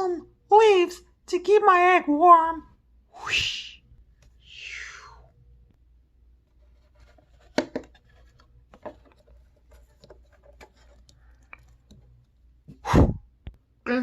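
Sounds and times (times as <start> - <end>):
handling clicks taps and rustles: 7.1 - 12.5.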